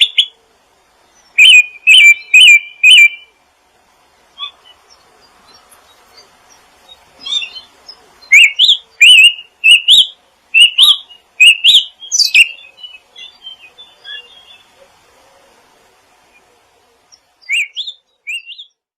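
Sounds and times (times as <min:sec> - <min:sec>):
bird twittering: 0:00.0 - 0:00.4, 0:01.1 - 0:03.4, 0:04.4 - 0:14.9, 0:17.1 - 0:18.8
songbird chirping: 0:00.0 - 0:18.9.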